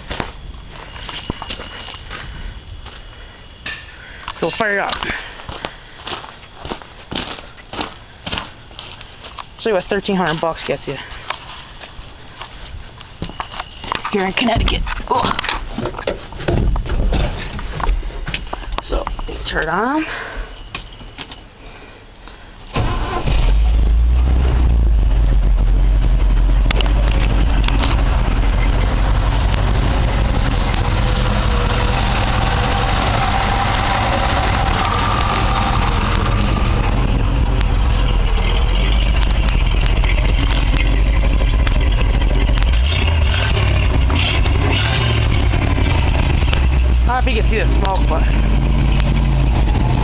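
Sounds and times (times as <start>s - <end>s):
truck engine starting and running: 22.6s - 50.0s.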